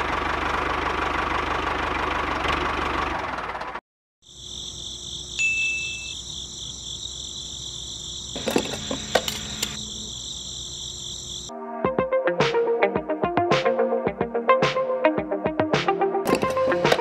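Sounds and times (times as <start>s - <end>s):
crickets chirring: 4.2s - 11.5s
sharp clicks: 8.4s - 9.9s, 16.3s - 17.0s.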